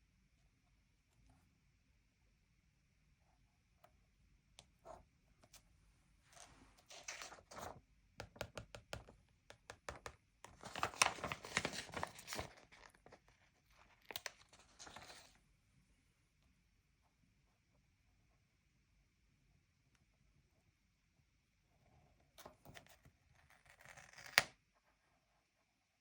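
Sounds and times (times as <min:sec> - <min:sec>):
stickers peeling and paper crinkling: 0:10.6 - 0:13.2.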